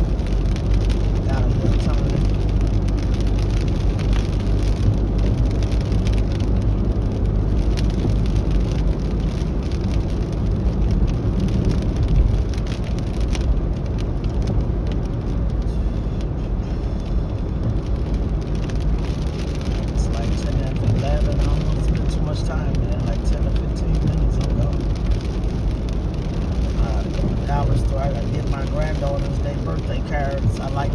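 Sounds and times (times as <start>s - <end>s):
car road and engine rumble: 0.0s - 30.9s
hiss of wet road and rain: 0.0s - 30.9s.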